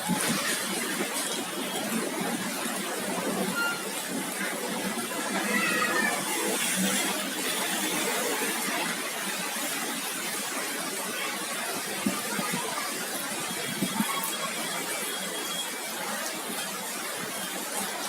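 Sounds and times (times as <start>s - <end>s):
heavy rain and hail falling: 0.0s - 18.0s.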